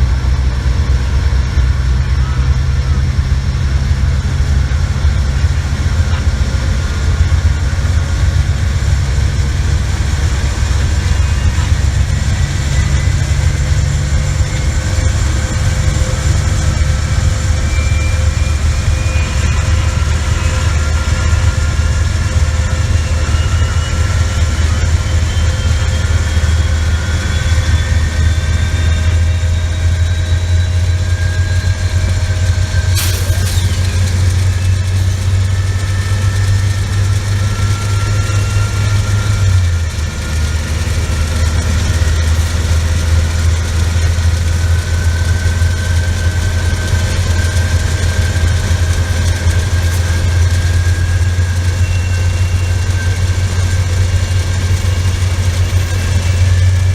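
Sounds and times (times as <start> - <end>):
engine droning with whine: 0.0 - 56.9
sharp click: 33.0 - 34.1.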